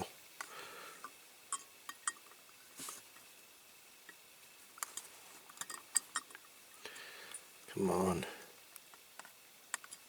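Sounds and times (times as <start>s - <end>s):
soft rustle: 2.6s - 3.4s, 4.4s - 6.0s
small metal parts clicking: 8.8s - 10.0s.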